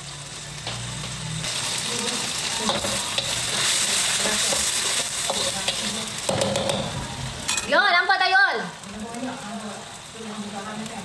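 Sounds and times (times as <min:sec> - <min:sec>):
paste sizzling in hot oil: 0:00.0 - 0:11.0
spatula scraping a pan: 0:00.7 - 0:07.0.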